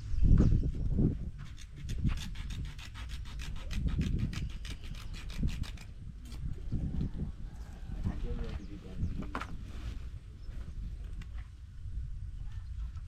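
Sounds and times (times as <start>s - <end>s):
rapid rasping scrape: 1.4s - 5.9s.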